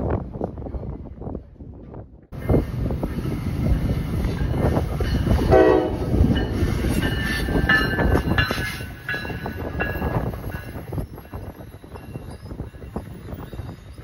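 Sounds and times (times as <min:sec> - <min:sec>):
train wheels rumbling on rail: 0:00.0 - 0:14.0
train horn blast: 0:05.4 - 0:06.2.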